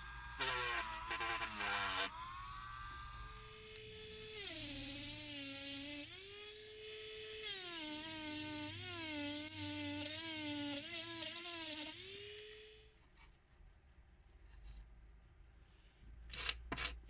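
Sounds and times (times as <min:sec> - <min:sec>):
rotary tool whining on metal: 0:00.0 - 0:12.8.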